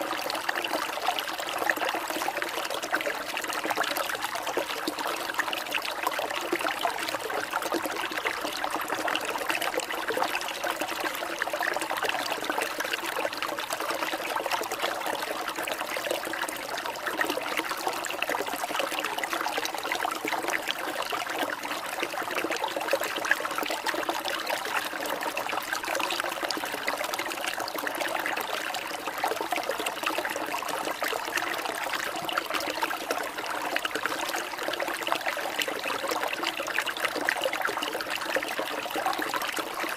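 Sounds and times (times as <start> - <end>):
water trickling in a stream: 0.0 - 39.9.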